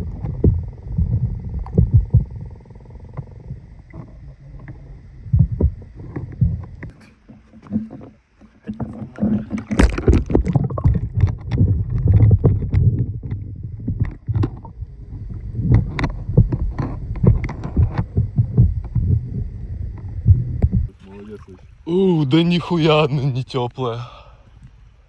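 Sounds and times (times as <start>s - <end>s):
low rumbling: 0.0s - 6.9s, 9.8s - 22.2s
water splashing: 3.1s - 23.0s.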